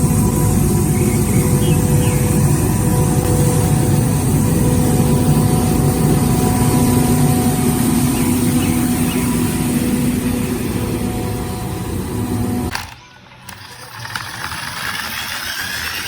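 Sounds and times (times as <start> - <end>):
constant whine: 0.0 - 16.0
road sweeper engine running: 0.0 - 16.0.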